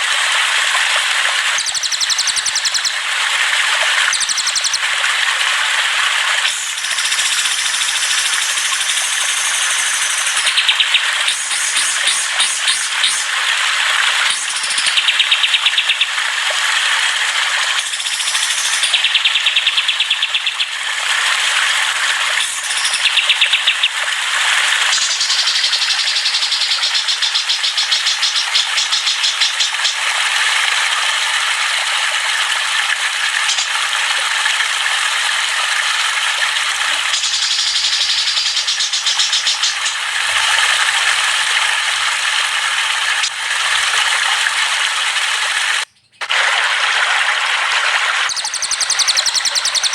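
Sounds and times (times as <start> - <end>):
caged songbirds chattering and trilling: 1.6 - 3.0, 4.1 - 4.8, 6.5 - 13.3, 14.3 - 16.2, 17.8 - 20.7, 22.4 - 24.0, 24.9 - 30.0, 33.5 - 33.7, 37.1 - 40.0, 45.8 - 46.2, 48.3 - 49.9.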